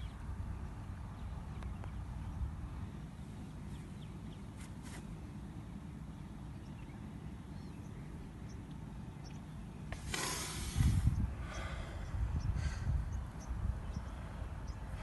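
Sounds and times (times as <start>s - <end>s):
low rumble of wind and surf: 0.0s - 15.0s.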